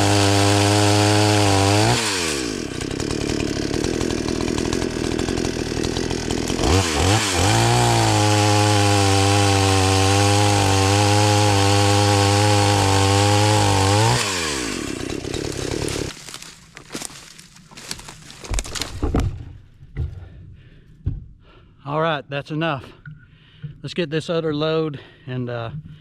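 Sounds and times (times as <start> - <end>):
chainsaw cutting log: 0.0 - 19.5.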